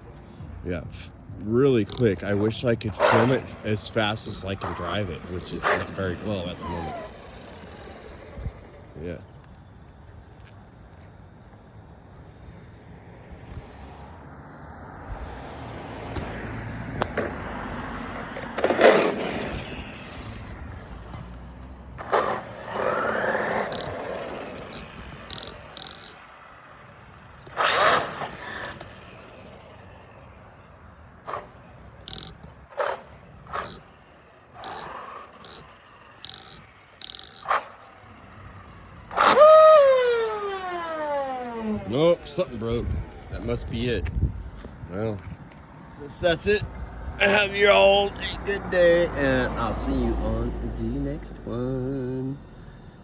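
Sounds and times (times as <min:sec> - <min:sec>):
electric motor and tyre noise: 0:00.0 - 0:53.0
motor whine: 0:03.2 - 0:17.4, 0:18.7 - 0:45.7
short sharp bursts: 0:27.5 - 0:28.9.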